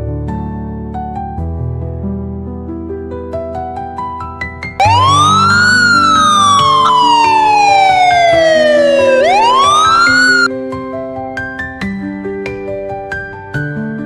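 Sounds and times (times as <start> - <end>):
gentle background music: 0.0 - 14.0
siren-like wail: 4.8 - 10.5.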